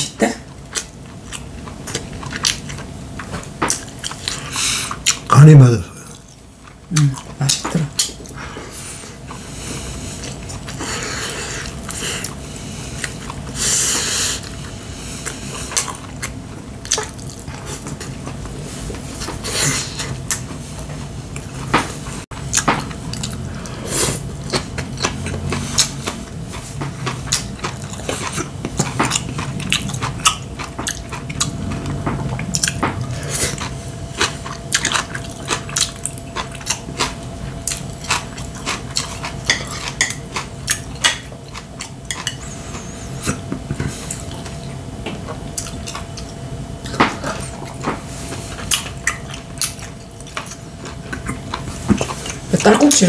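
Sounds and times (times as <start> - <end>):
wet chewing and smacking: 0.6 - 5.3, 14.4 - 21.6, 22.4 - 23.4, 24.2 - 53.0.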